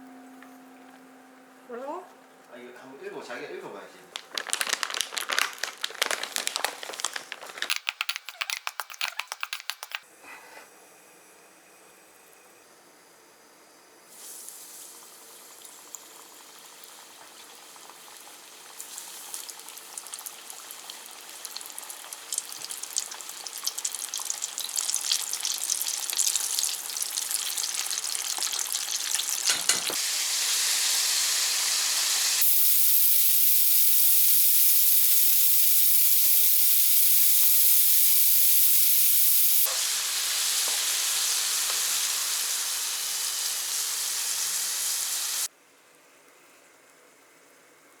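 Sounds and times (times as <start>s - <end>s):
crackling clicks: 4.1s - 10.0s
food sizzling in a pan: 14.1s - 45.5s.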